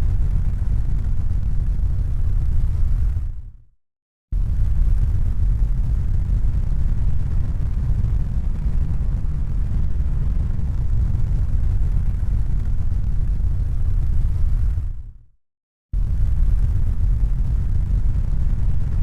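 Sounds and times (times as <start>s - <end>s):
deep rumbling noise: 4.4s - 15.2s, 16.0s - 19.0s.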